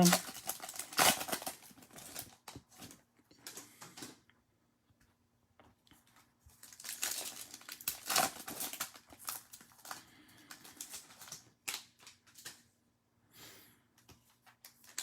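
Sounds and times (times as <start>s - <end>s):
trading cards and wrappers crinkling: 0.0s - 4.2s, 6.0s - 12.7s, 14.0s - 15.0s.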